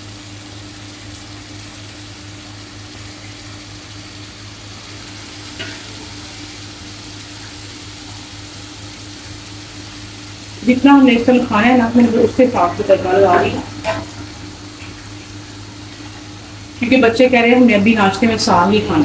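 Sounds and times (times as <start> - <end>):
butter sizzling in a wok: 0.0 - 19.0.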